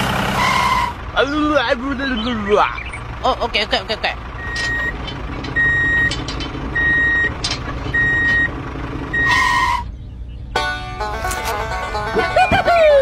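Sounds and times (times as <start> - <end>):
low engine rumble: 0.0 - 13.0
reversing alarm beeping: 4.4 - 9.9.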